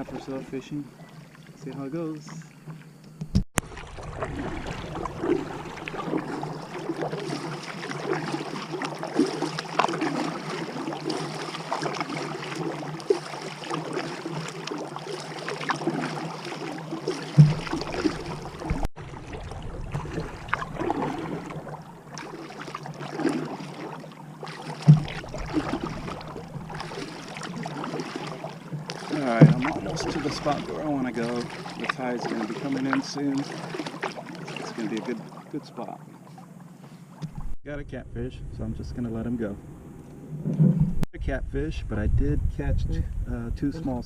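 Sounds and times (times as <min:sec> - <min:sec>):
paddle splashing in water: 0:00.0 - 0:37.6
sharp thumps: 0:17.4 - 0:18.9, 0:24.8 - 0:26.9, 0:28.7 - 0:30.7, 0:39.8 - 0:41.1.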